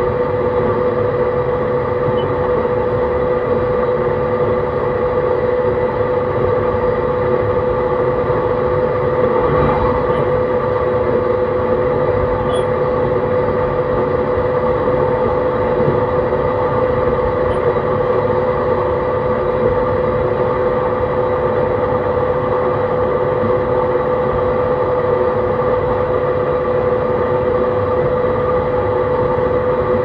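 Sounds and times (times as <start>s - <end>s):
traction motor whine: 0.0s - 23.9s.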